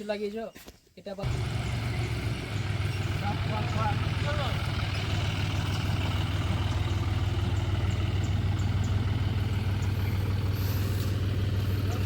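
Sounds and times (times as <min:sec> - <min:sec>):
diesel tractor engine idling: 0:01.2 - 0:12.0.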